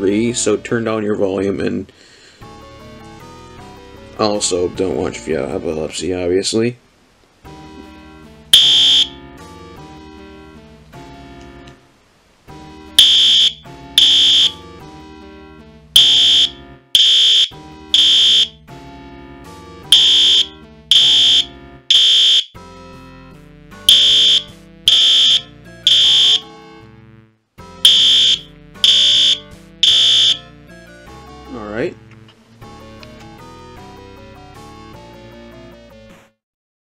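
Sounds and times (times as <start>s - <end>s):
fire alarm horn blasts: 8.5s - 9.3s, 13.0s - 14.7s, 16.0s - 18.6s, 19.9s - 22.6s, 23.9s - 26.5s, 27.8s - 30.5s.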